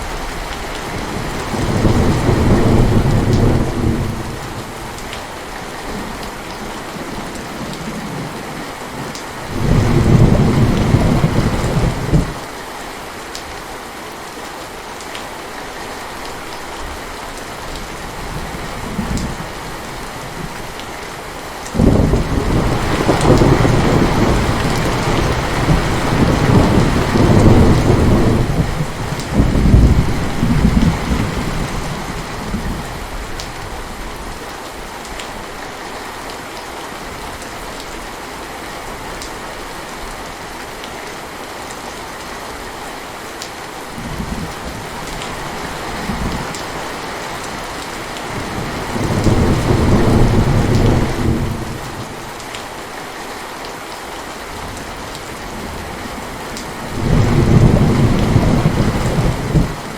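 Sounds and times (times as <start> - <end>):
thunder rumbling: 0.0 - 5.0, 6.9 - 12.4, 21.8 - 33.4, 48.2 - 52.3, 55.5 - 59.9
heavy rain: 0.0 - 59.9.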